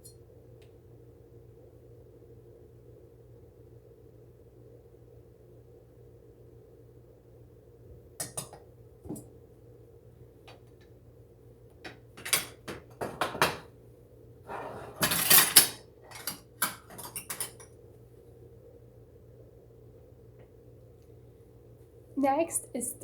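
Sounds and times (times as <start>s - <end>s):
dishes and utensils clattering: 12.2s - 13.7s, 14.5s - 17.7s.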